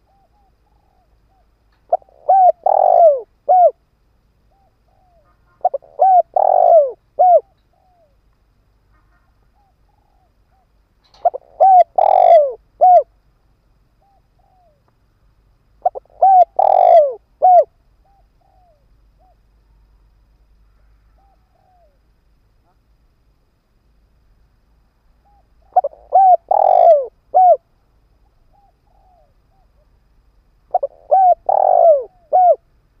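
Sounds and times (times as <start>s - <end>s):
dove cooing: 0.0s - 3.8s, 4.5s - 8.2s, 9.6s - 13.2s, 15.8s - 19.5s, 20.8s - 22.0s, 25.2s - 27.7s, 28.5s - 29.9s, 30.7s - 32.7s.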